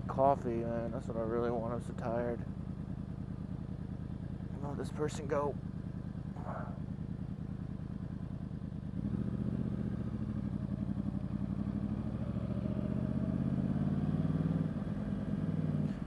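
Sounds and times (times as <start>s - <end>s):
motorcycle engine pulling away: 5.6s - 16.0s.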